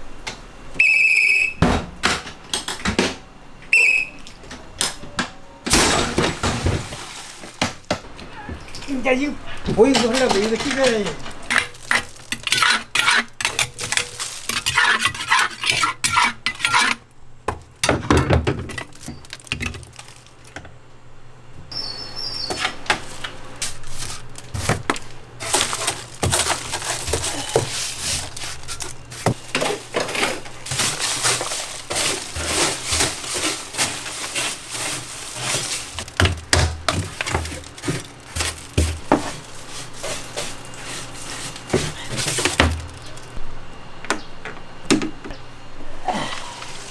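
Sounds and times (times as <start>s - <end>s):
metal containers clattering: 5.7s - 20.7s, 22.3s - 43.4s, 46.2s - 46.9s
hard pieces knocking and rattling: 5.7s - 20.8s, 22.5s - 43.4s.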